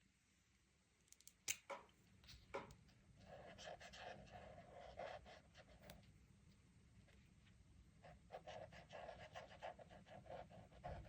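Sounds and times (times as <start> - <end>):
coloring tool scratching paper: 8.3 - 11.0.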